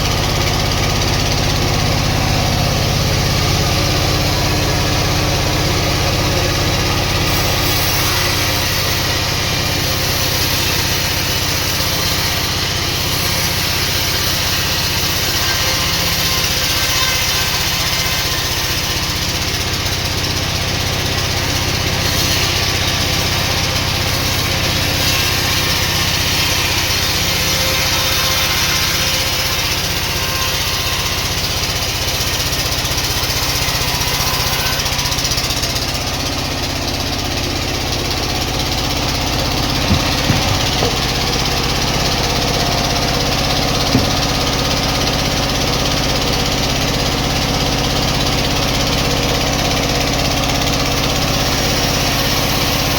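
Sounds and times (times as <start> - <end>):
motor hum: 37.2 - 46.7.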